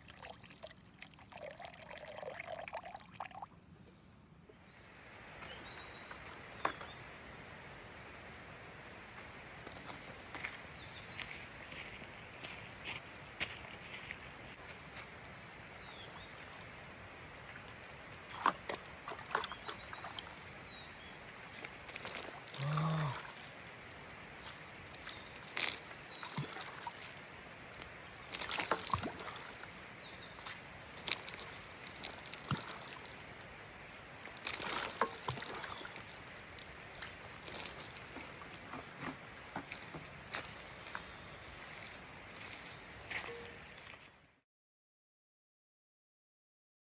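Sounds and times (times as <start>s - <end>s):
water pouring and sloshing: 0.0s - 3.5s, 16.4s - 44.1s
brief low tone: 43.2s - 43.7s.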